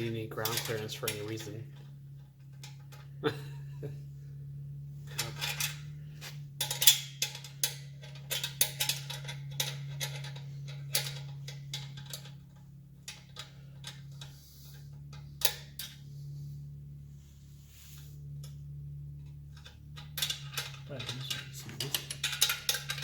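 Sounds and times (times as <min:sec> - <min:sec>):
steady low hum: 0:00.0 - 0:23.0
hand tools clicking on metal: 0:20.0 - 0:23.0.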